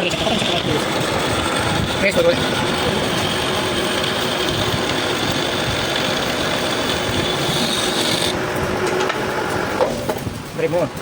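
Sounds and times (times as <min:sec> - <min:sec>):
machine rasping on metal: 0:00.0 - 0:08.4
high machine whine: 0:00.0 - 0:11.0.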